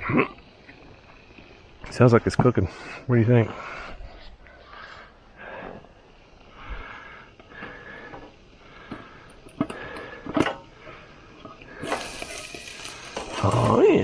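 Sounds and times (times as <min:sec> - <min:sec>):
food sizzling in a pan: 0:11.9 - 0:13.9.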